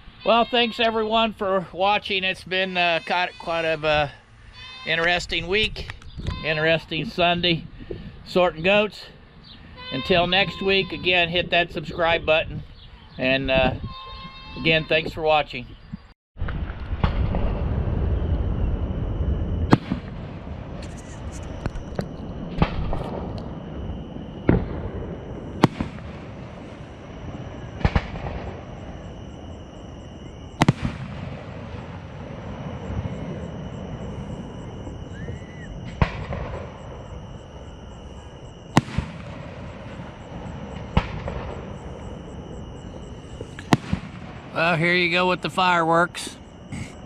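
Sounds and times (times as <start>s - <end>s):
fireworks rumbling and crackle: 0.0s - 13.9s, 14.6s - 47.0s
fireworks bangs: 9.8s - 12.1s, 16.4s - 47.0s.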